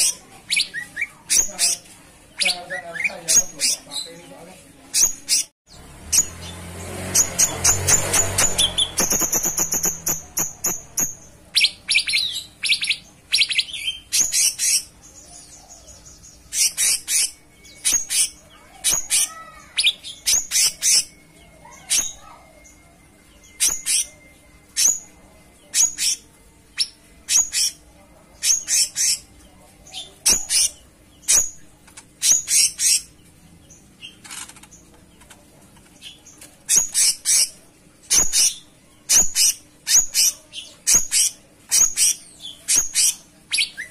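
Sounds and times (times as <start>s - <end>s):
songbird chirping: 0.0s - 43.9s.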